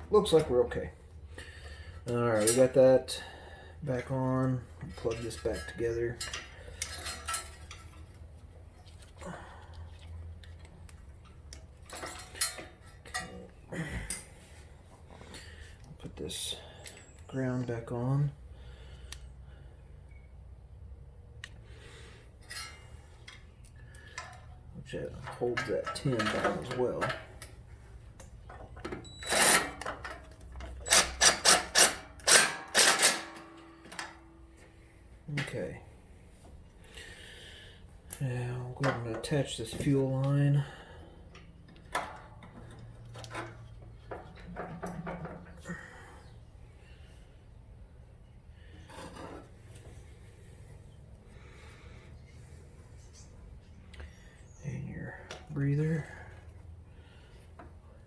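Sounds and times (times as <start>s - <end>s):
metal parts and tools clinking: 2.3s - 2.8s, 4.8s - 8.3s, 11.2s - 14.4s, 22.4s - 27.6s, 28.5s - 34.6s
power tool tightening bolt bursts: 29.0s - 34.1s.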